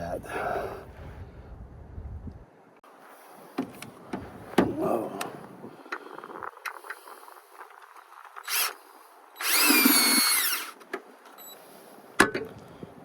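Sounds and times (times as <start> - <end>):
power drill whirring: 8.4 - 8.8, 9.4 - 10.8.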